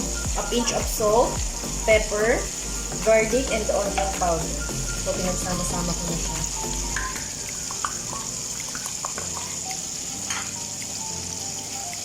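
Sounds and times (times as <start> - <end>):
gravy bubbling and sizzling in pan: 0.0 - 12.0.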